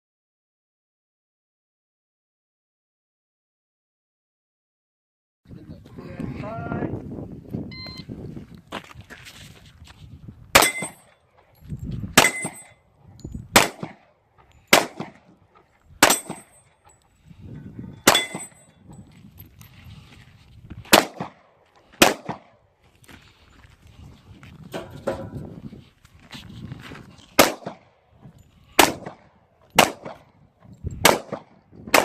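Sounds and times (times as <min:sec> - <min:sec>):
pistol shots: 0:10.6 - 0:11.0, 0:12.2 - 0:12.7, 0:13.5 - 0:14.1, 0:14.7 - 0:15.3, 0:16.0 - 0:16.5, 0:18.0 - 0:18.6, 0:20.9 - 0:22.6, 0:27.4 - 0:27.9, 0:28.8 - 0:30.3, 0:31.0 - 0:32.0
metallic ring: 0:10.6 - 0:13.5, 0:17.9 - 0:19.4.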